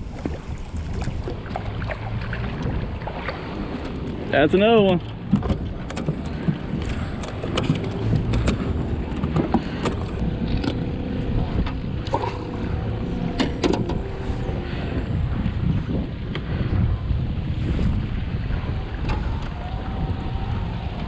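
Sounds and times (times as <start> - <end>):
wind buffeting microphone: 0.0 - 21.0
sharp knocks and clicks: 5.0 - 10.8.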